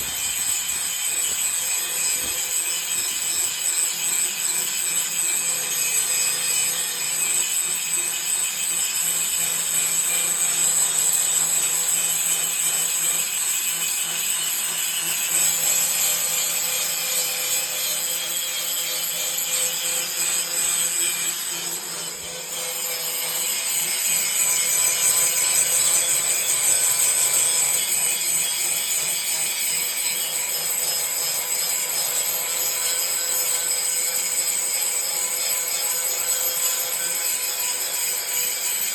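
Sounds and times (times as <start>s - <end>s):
angle grinder grinding steel: 0.0s - 5.1s.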